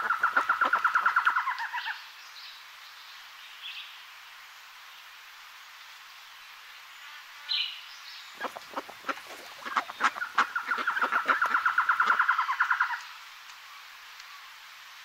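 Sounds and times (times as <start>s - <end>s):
magpie chattering: 8.4s - 12.9s.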